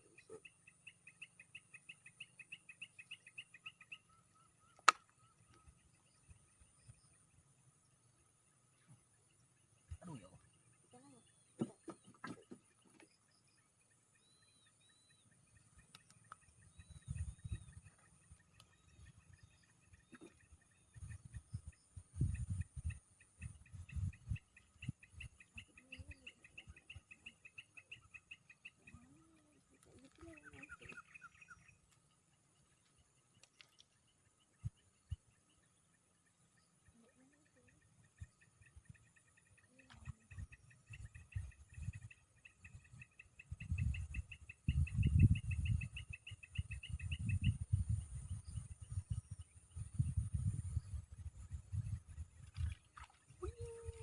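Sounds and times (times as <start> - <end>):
bird twittering: 14.1 - 31.9
rapid high bird chirps: 36.6 - 52.3.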